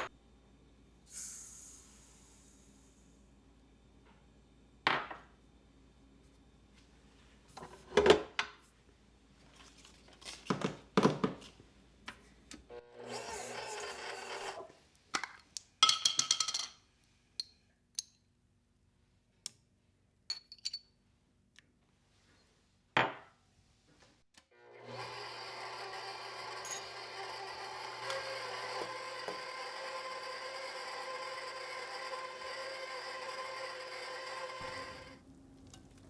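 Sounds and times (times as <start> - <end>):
objects knocking: 34.6 - 36.0.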